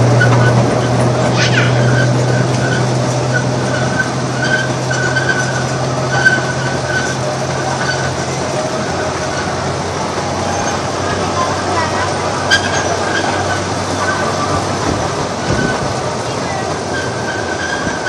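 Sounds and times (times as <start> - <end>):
high wheel squeal: 0.0 - 18.0
small train rumble and clatter: 0.0 - 18.0.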